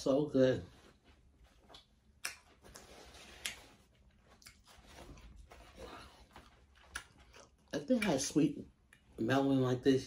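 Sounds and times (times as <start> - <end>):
wet mouth clicks: 1.7 - 3.8
chewing watermelon: 1.7 - 7.8.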